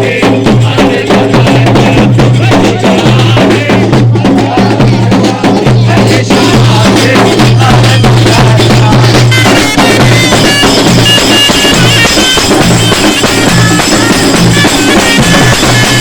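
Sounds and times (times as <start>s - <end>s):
drums beating: 0.0s - 16.0s
high piping melody: 8.2s - 16.0s.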